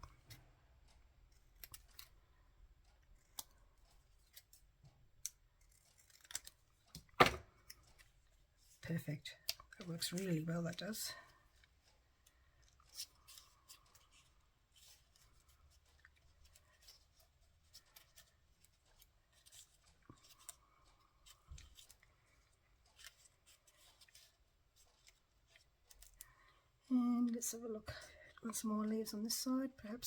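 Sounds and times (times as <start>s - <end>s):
scissors snipping paper: 3.1s - 6.7s.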